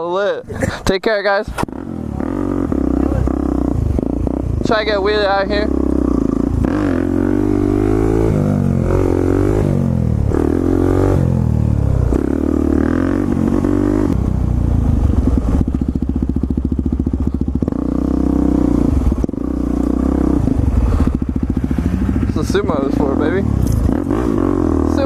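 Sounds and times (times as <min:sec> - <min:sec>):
motorcycle engine revving: 0:01.5 - 0:25.0.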